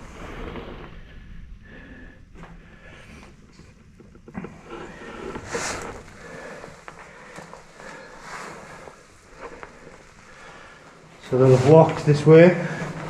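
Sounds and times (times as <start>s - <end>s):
clothing rustle: 2.6s - 13.0s
footsteps crunching on grit: 4.4s - 13.0s.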